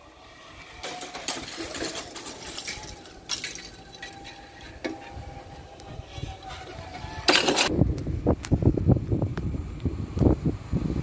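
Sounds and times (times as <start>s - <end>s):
train wheels clinking and rattling: 0.8s - 5.1s.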